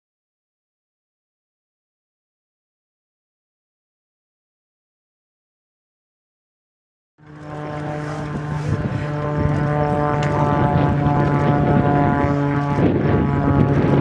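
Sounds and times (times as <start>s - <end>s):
propeller airplane engine running: 7.2s - 14.0s.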